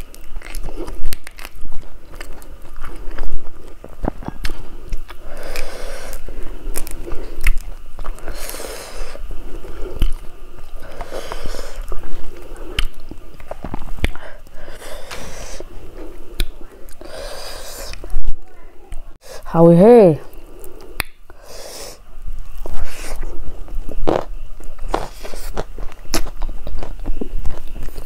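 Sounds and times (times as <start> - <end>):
bean pods snapping apart: 0.0 - 8.6, 10.0 - 11.9, 16.3 - 18.1, 20.3 - 21.2
close chewing and biting: 0.0 - 19.2, 20.3 - 28.0.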